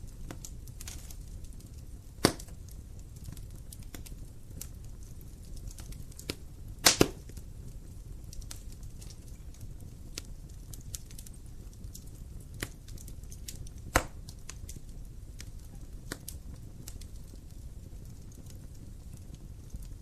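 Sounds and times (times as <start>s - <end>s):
wood fire crackling: 0.0s - 20.0s
logs popping: 2.2s - 2.6s, 5.7s - 7.4s, 12.6s - 14.4s.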